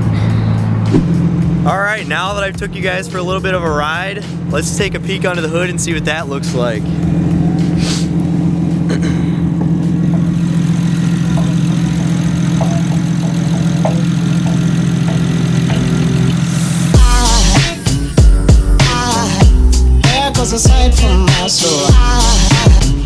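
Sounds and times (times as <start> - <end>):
car engine idling: 0.0 - 23.0
hip-hop music with heavy bass: 1.0 - 8.2, 15.2 - 23.0.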